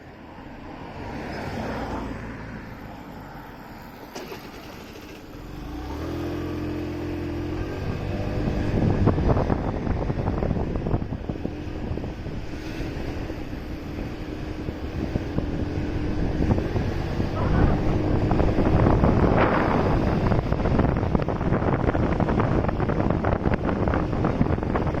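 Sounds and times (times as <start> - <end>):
motorcycle engine: 3.4 - 25.0
wind rushing over microphone: 5.3 - 25.0.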